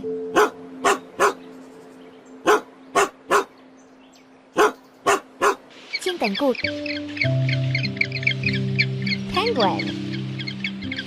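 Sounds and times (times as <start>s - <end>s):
dog barking: 0.3s - 1.4s, 2.4s - 3.5s, 4.6s - 5.6s.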